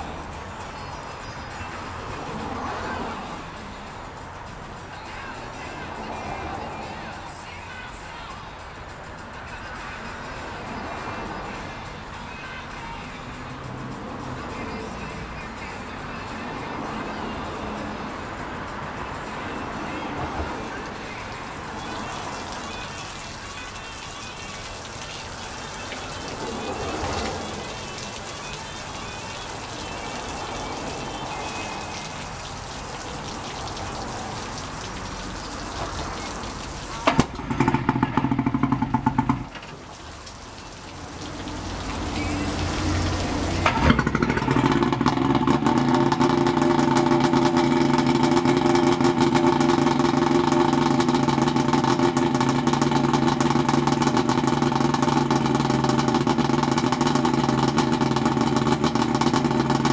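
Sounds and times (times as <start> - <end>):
outboard motor idling: 19.2 - 59.9
outboard motor cranking: 20.7 - 59.9.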